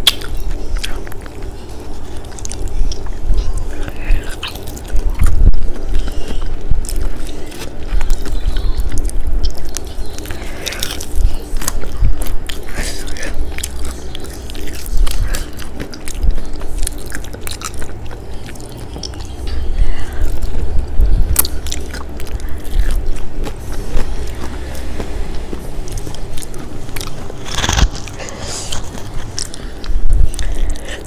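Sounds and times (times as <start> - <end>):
person chewing fried chicken: 0.0 - 31.0.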